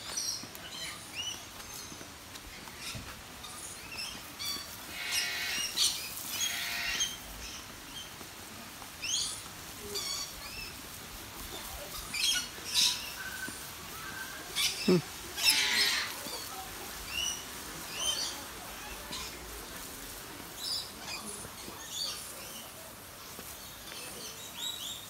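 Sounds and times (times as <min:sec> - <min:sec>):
birds chirping and squeaking: 0:00.0 - 0:08.2, 0:09.0 - 0:25.0
harsh bird calls: 0:12.0 - 0:16.5.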